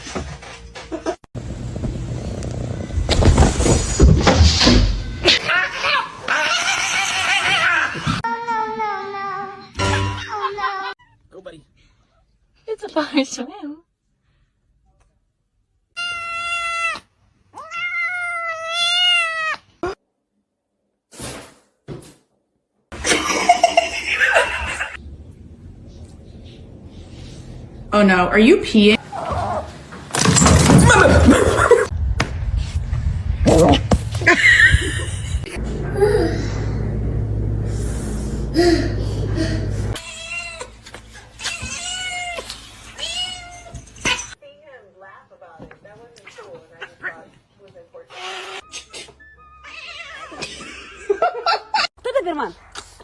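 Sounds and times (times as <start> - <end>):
cat meowing: 16.0 - 19.7, 49.6 - 50.4
steady low hum: 32.4 - 40.0.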